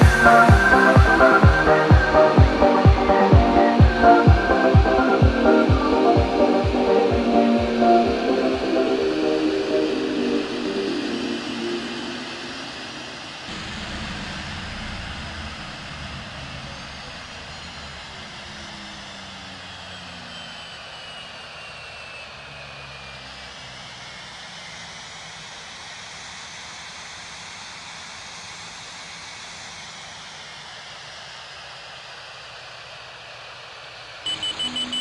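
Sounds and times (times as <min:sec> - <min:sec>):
jet engines running down: 0:00.0 - 0:35.0.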